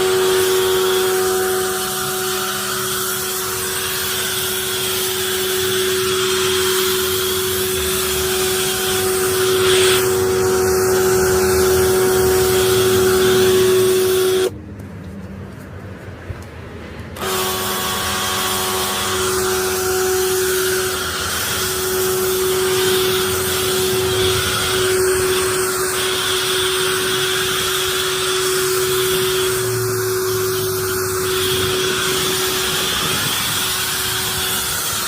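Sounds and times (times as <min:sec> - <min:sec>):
pressure washer motor hum: 0:00.0 - 0:14.6, 0:17.2 - 0:35.0.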